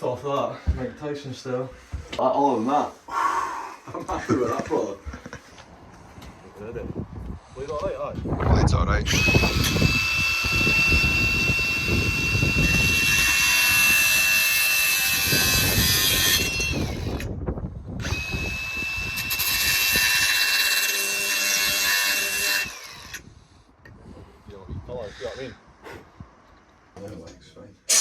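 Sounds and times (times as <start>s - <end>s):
power saw cutting wall panel: 9.1s - 17.3s, 18.0s - 23.2s.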